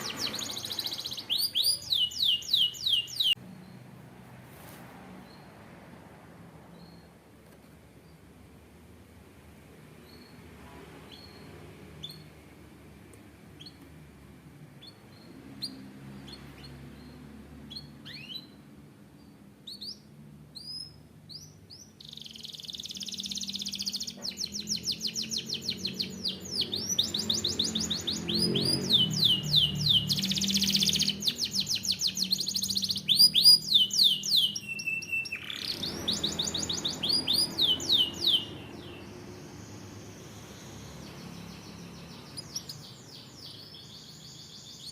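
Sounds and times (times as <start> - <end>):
canary whistle: 0.0 - 3.4, 22.0 - 38.9
canary chirping: 0.0 - 3.9, 6.7 - 7.2, 9.9 - 12.6, 13.2 - 44.9
canary song trills: 0.0 - 4.0, 9.8 - 44.9.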